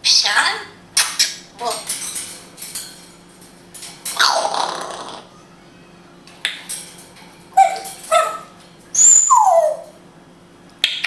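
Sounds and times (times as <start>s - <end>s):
parrot calling and squawking: 4.1s - 5.5s, 7.4s - 10.0s
parrot whistle: 7.6s - 9.9s.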